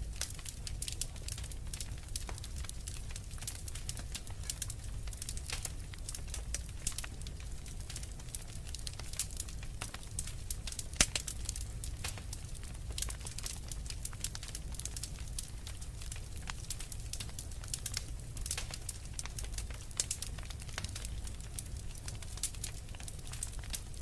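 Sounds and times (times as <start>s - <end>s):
flames rumbling: 0.0s - 24.0s
wood fire snapping and popping: 0.0s - 24.0s.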